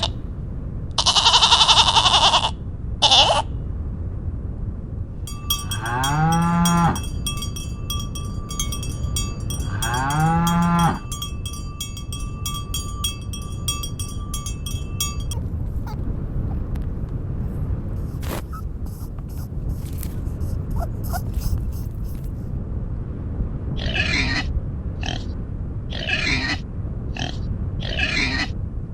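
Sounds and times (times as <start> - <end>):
high-pitched ringing: 5.3 - 16.0
rapid ticking: 5.3 - 16.0
cow mooing: 5.5 - 11.3.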